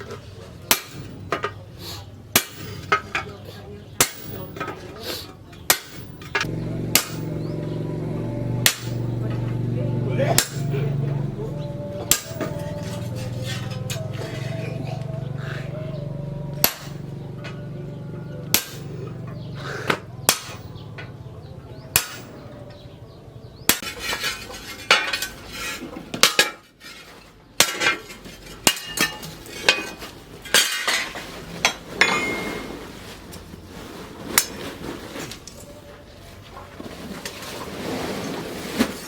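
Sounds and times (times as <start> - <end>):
hammer striking steel: 0.7 - 1.5, 2.3 - 3.1, 4.0 - 4.8, 5.7 - 14.7, 16.5 - 17.6, 18.4 - 21.1, 21.9 - 22.5
low steady hum: 5.7 - 25.3.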